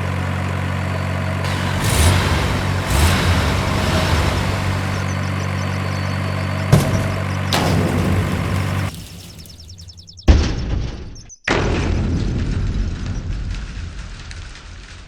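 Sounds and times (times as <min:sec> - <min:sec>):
engine idling with low hum: 0:00.0 - 0:10.0.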